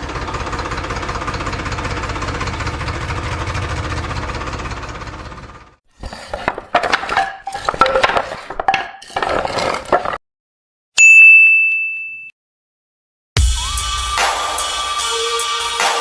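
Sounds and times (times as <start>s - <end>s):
bright bell-like ding: 11.0s - 12.3s
music: 13.4s - 16.0s.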